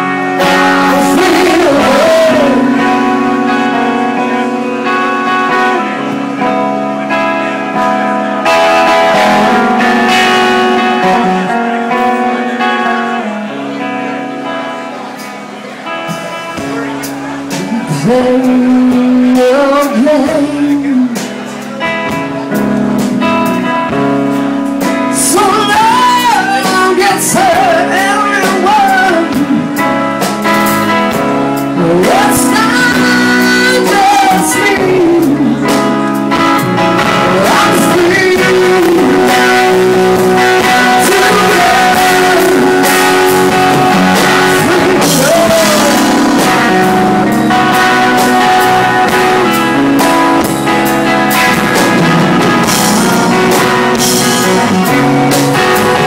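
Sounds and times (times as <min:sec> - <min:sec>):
person singing: 0:00.0 - 0:15.2, 0:15.8 - 0:56.0
guitar: 0:00.0 - 0:56.0.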